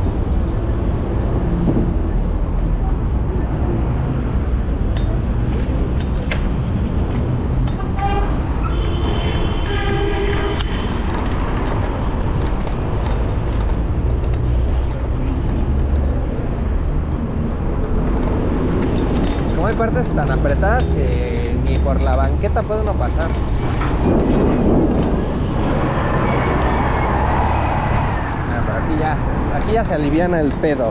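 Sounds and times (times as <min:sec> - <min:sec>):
wind on microphone: 0:00.0 - 0:08.7, 0:22.4 - 0:28.5
street traffic: 0:00.0 - 0:30.9
vehicle horn honking: 0:07.8 - 0:11.0.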